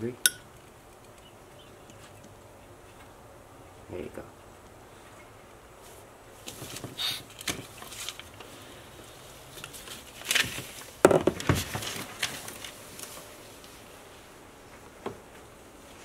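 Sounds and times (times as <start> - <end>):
rustling and clicking handling noises: 5.8 - 13.8.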